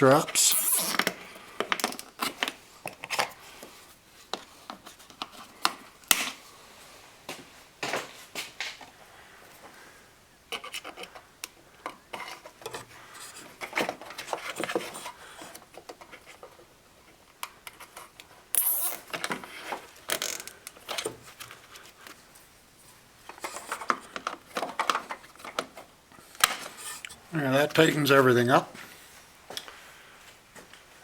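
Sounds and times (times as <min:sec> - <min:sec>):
zip tie pulled tight: 0:00.4 - 0:01.0, 0:18.6 - 0:19.1
zip ties clicking and scraping: 0:00.4 - 0:01.1, 0:18.5 - 0:19.1.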